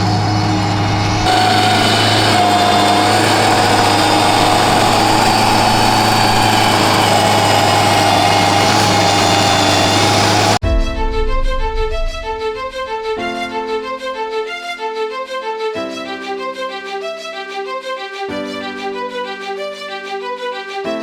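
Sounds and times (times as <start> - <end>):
stump grinder engine running: 0.0 - 10.6.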